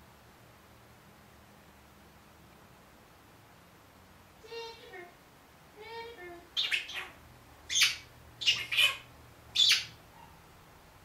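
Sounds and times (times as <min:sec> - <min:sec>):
parrot squawking: 0:06.6 - 0:10.0
parrot high-pitched call: 0:06.6 - 0:10.3.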